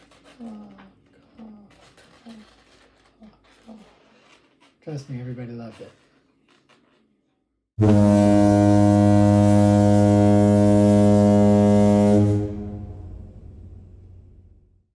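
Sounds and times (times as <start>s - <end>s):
deep horn-like tone: 7.8s - 14.6s.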